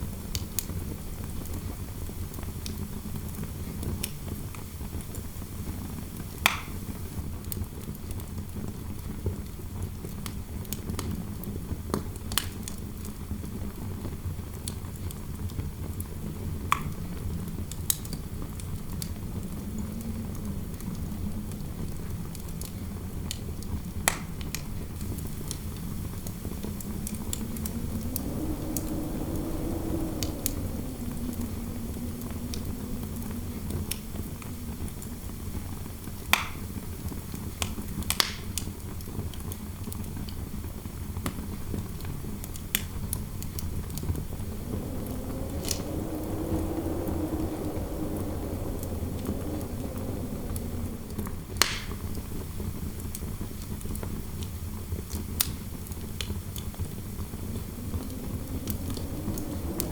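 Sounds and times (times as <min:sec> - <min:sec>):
wind howling: 0:17.0 - 0:22.6, 0:24.8 - 0:37.3, 0:43.0 - 0:53.4, 0:55.8 - 0:59.9
fire crackling and popping: 0:24.0 - 0:38.7, 0:42.5 - 0:54.0, 0:55.0 - 0:59.9.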